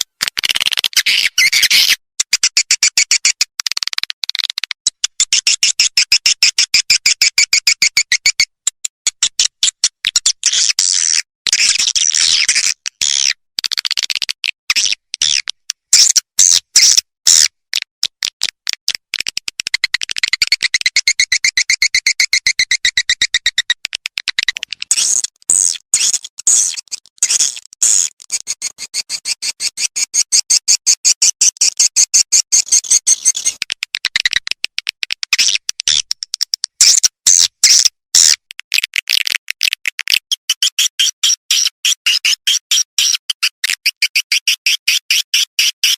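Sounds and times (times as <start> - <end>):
swiftlet twittering recording: 20.2 - 34.7.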